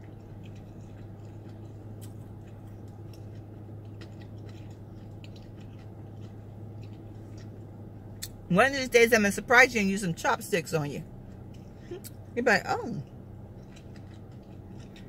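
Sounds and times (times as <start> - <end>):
person chewing noodles: 0.0 - 8.4, 13.0 - 15.0
low steady hum: 0.0 - 15.0.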